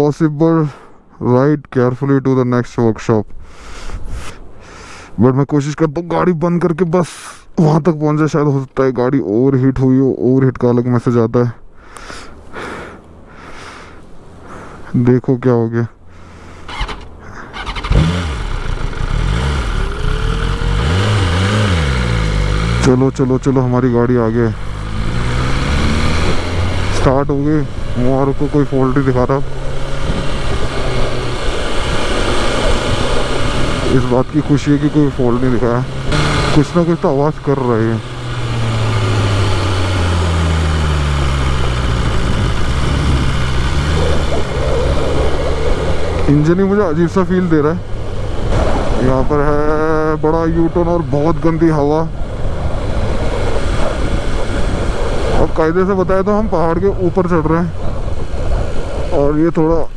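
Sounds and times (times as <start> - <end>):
motorcycle engine revving: 16.4 - 59.9
motorcycle engine cranking: 16.7 - 22.9.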